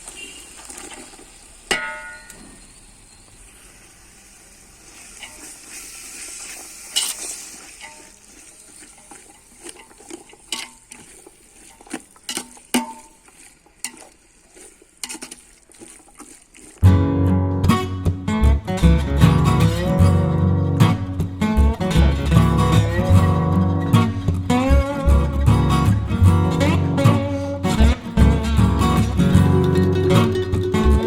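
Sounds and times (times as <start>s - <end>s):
food sizzling in a pot: 0.0s - 13.1s
metal clang: 1.7s - 2.6s, 12.3s - 13.2s.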